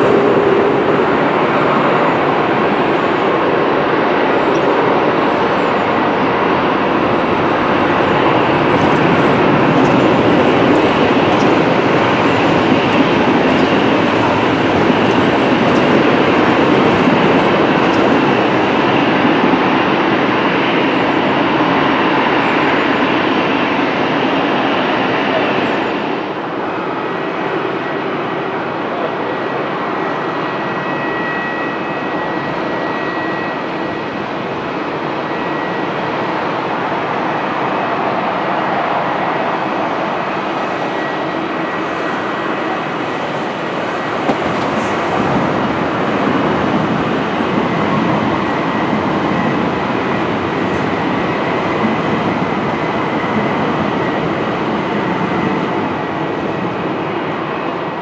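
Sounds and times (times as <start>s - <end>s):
faint high whine: 0.0s - 18.8s
train wheel and rail noise: 0.0s - 58.0s.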